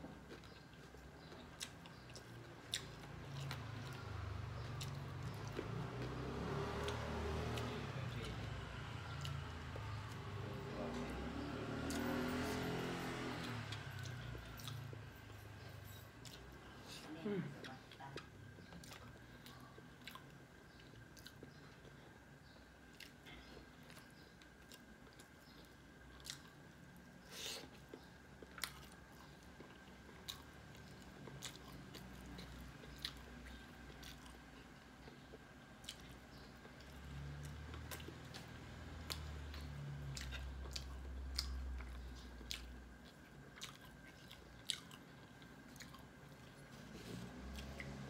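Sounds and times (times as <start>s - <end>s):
person chewing and biting: 26.1s - 48.0s.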